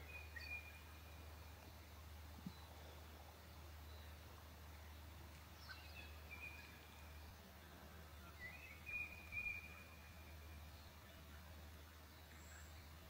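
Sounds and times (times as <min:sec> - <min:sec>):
faint low hum: 0:00.0 - 0:13.0
songbird whistling: 0:08.4 - 0:09.9.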